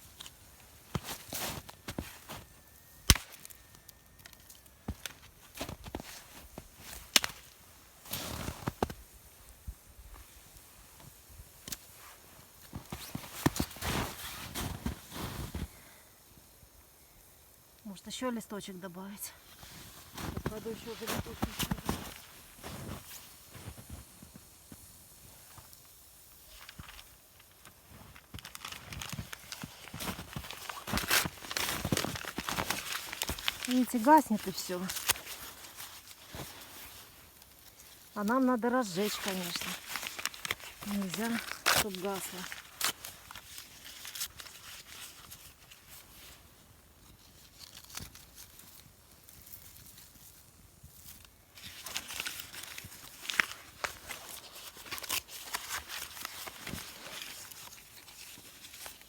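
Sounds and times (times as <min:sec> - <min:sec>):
campfire crackling: 0:00.0 - 0:59.0
footsteps on snow: 0:00.8 - 0:02.6, 0:12.6 - 0:15.8, 0:19.4 - 0:24.9, 0:29.0 - 0:43.5
sharp snap of twig: 0:03.0 - 0:03.6.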